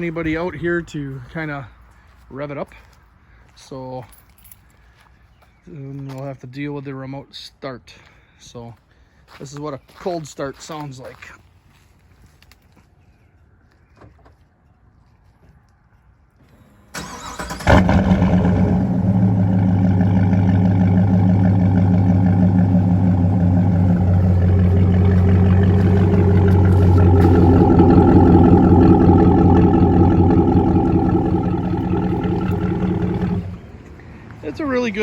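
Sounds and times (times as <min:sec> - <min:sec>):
engine starting and idling: 0:16.9 - 0:33.7
starter cranking: 0:19.6 - 0:33.6.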